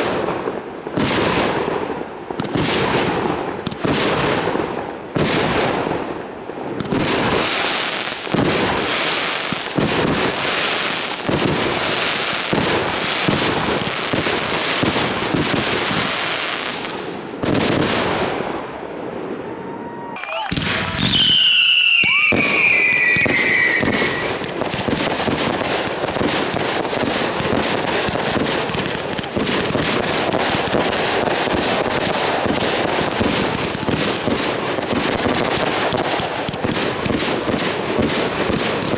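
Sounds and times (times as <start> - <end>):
fireworks bangs and crackling: 0.0 - 38.9
falling firework whistle: 19.4 - 24.5.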